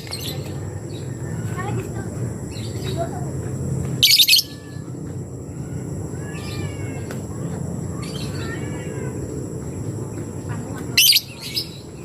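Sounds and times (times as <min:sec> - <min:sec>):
low background hum: 0:00.0 - 0:12.0
bird calls: 0:04.0 - 0:04.9, 0:10.5 - 0:12.0.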